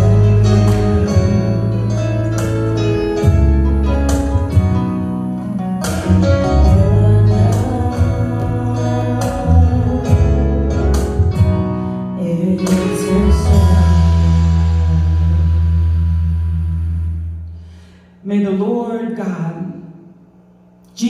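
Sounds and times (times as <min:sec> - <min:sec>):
sustained singing: 0:00.0 - 0:02.4, 0:05.4 - 0:11.1
worship band with guitar and bass: 0:00.0 - 0:18.2.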